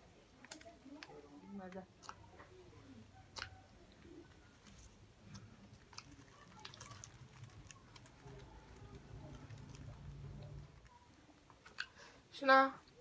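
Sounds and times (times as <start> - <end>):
chewing food: 1.9 - 12.0.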